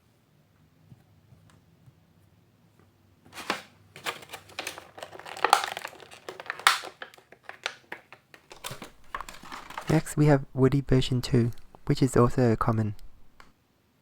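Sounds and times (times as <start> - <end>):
plastic packaging crinkling and tearing: 3.4 - 10.4.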